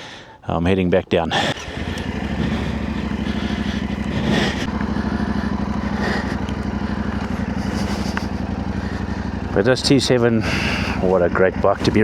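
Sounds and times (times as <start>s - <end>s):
motorcycle engine idling: 1.4s - 12.0s.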